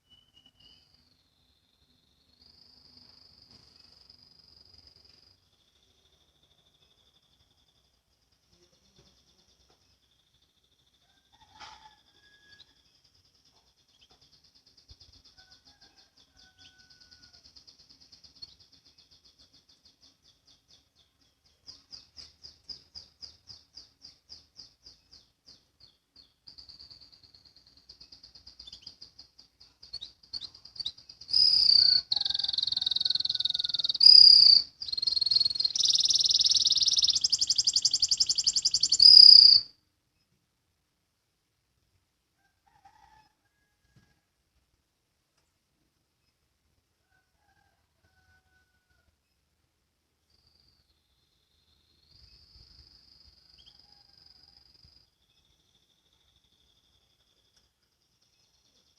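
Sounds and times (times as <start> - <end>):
canary singing fast trills: 13.8 - 39.7.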